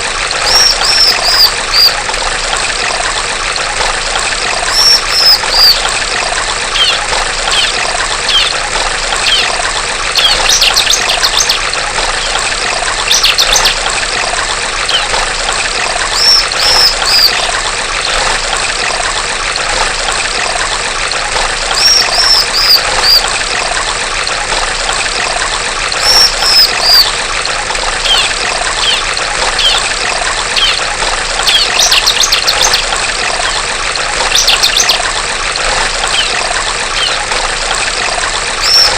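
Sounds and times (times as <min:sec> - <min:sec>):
water trickling: 0:00.0 - 0:38.9
bird calling: 0:00.4 - 0:02.0, 0:04.7 - 0:05.9, 0:06.8 - 0:08.6, 0:09.2 - 0:09.6, 0:13.1 - 0:13.8, 0:14.9 - 0:15.2, 0:16.1 - 0:17.6, 0:21.8 - 0:23.3, 0:26.0 - 0:27.2, 0:28.0 - 0:29.9, 0:30.6 - 0:33.6, 0:34.3 - 0:35.0, 0:36.1 - 0:37.3, 0:38.6 - 0:38.9.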